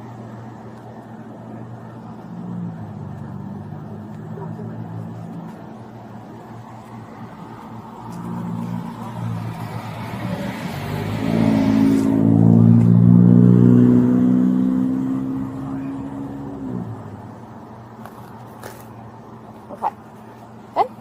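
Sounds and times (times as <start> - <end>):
vehicle driving past: 6.6 - 17.4.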